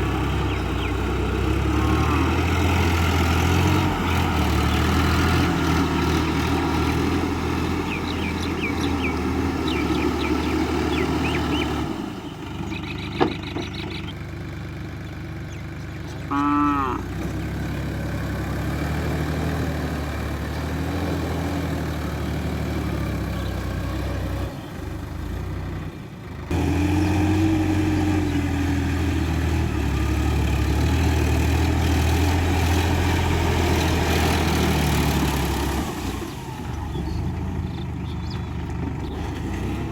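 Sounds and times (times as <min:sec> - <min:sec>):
tractor diesel engine running: 0:00.0 - 0:39.9
animal call: 0:16.0 - 0:17.2.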